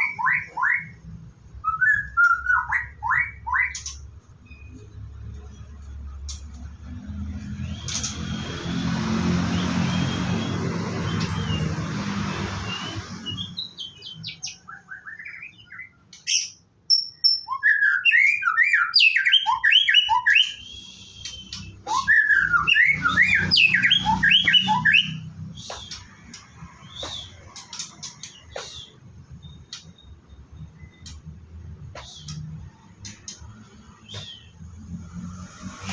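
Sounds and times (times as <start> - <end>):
bird singing whistles and chirps: 1.6 - 4.8, 12.6 - 31.3, 33.1 - 34.7.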